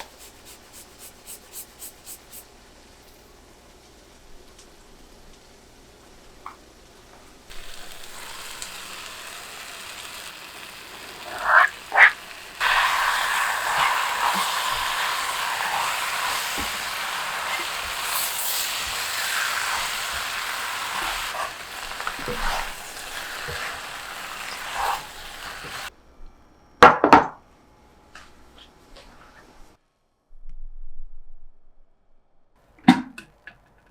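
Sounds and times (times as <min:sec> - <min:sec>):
food sizzling in a frying pan: 0:07.5 - 0:25.9.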